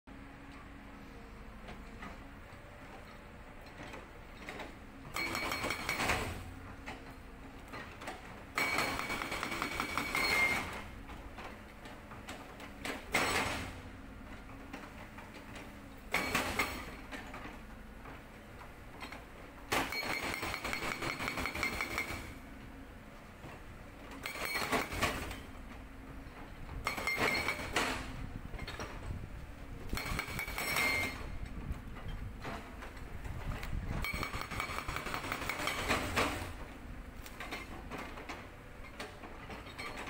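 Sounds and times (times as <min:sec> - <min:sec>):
excavator diesel engine running: 0:00.1 - 0:40.0
hydraulic breaker hammering rock: 0:05.1 - 0:06.5, 0:08.1 - 0:10.9, 0:12.9 - 0:13.8, 0:16.1 - 0:17.0, 0:19.7 - 0:22.4, 0:24.2 - 0:25.5, 0:26.7 - 0:28.9, 0:29.8 - 0:31.4, 0:33.5 - 0:36.6.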